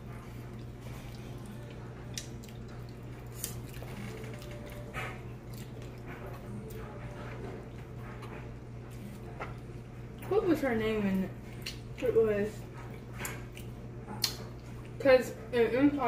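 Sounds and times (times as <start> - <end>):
person chewing wetly: 0.0 - 7.0, 11.4 - 12.1, 12.8 - 15.0.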